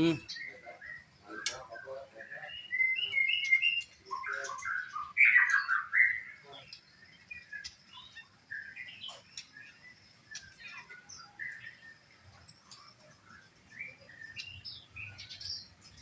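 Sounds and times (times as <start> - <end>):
songbirds chirping and calling: 0.0 - 16.0.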